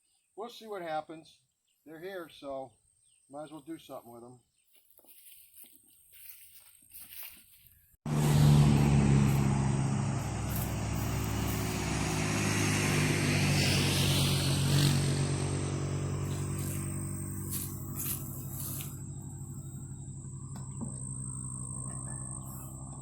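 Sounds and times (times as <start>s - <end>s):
loader engine running: 8.1s - 23.0s.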